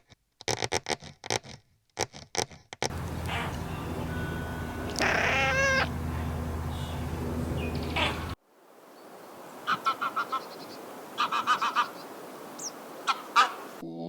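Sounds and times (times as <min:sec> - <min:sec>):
steady low hum: 0:02.9 - 0:08.4
cat meowing: 0:04.9 - 0:05.9.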